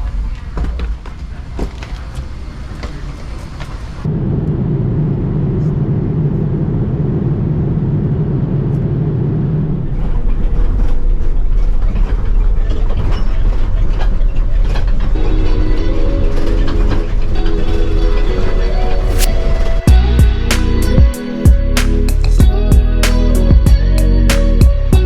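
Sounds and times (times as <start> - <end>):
vehicle rumble with rattling: 0.0 - 20.8
music with held notes: 15.2 - 25.0.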